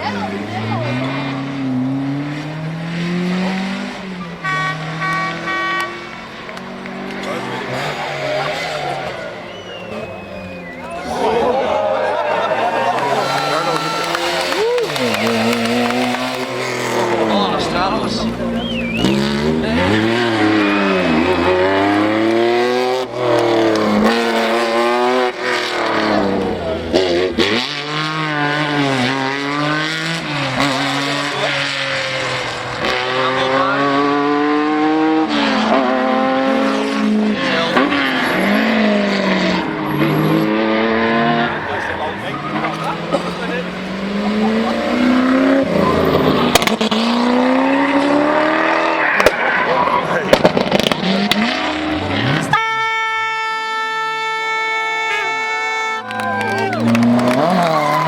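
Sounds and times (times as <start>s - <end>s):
rally car engine revving: 0.0s - 58.0s
sharp crack: 49.0s - 51.8s.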